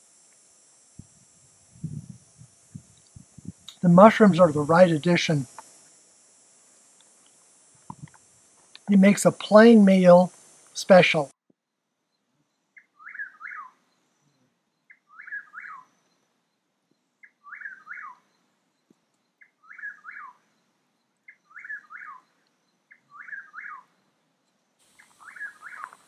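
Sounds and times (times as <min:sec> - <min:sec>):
bird song phrase: 0:12.1 - 0:16.2, 0:17.2 - 0:18.2, 0:19.4 - 0:20.4, 0:21.3 - 0:24.1, 0:25.0 - 0:26.0.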